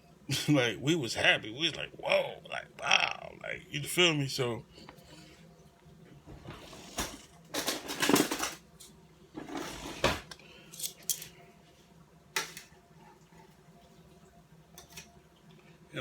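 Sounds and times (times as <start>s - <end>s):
kitchen utensils scraping and clattering: 6.3s - 11.4s.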